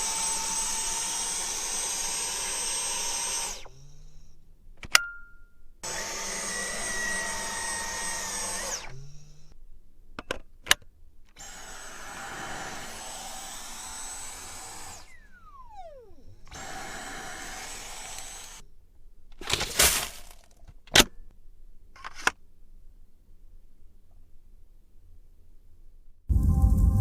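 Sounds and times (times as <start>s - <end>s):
vacuum cleaner motor running: 0.0s - 4.4s, 5.8s - 9.5s, 11.4s - 18.6s
motor spinning down whine: 5.8s - 9.6s, 11.4s - 18.6s, 26.3s - 27.0s.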